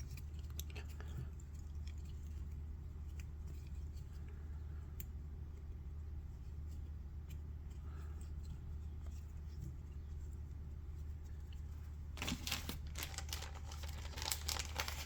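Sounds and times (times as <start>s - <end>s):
plastic packaging crinkling: 12.2s - 15.0s.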